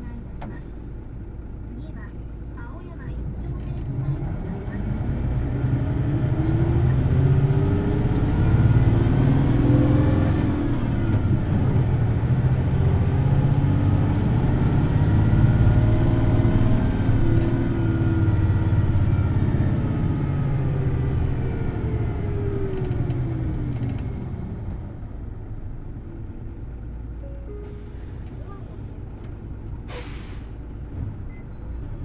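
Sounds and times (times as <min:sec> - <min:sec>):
bus engine with high whine: 0:00.0 - 0:32.0.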